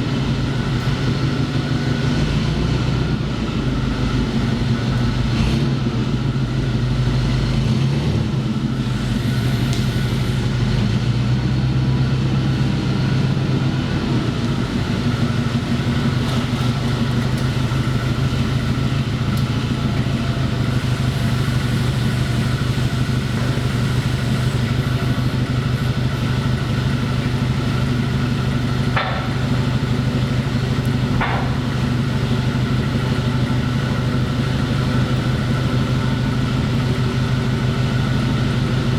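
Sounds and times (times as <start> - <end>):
engine humming steadily: 0.0 - 38.9.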